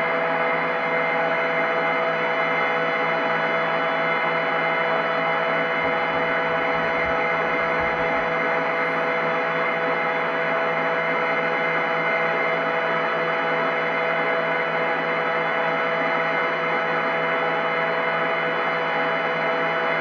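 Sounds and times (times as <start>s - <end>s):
washing machine spinning: 2.3s - 9.6s.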